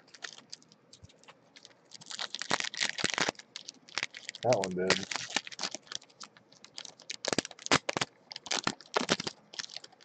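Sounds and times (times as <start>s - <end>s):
card pack wrappers tearing and crinkling: 0.0s - 10.0s.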